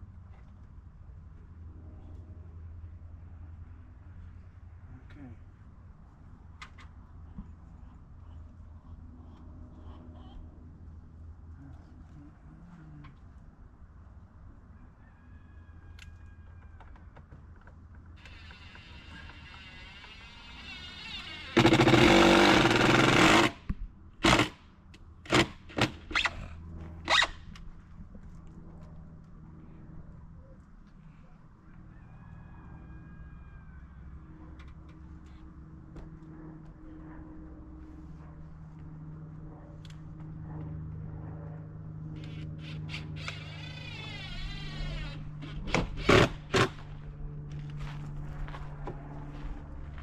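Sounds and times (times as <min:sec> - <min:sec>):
faint low hum: 0:00.0 - 0:22.0, 0:26.2 - 0:50.0
rooster crowing: 0:14.7 - 0:17.0, 0:31.6 - 0:34.3
loud engine-like sound: 0:18.2 - 0:27.6, 0:34.0 - 0:50.0.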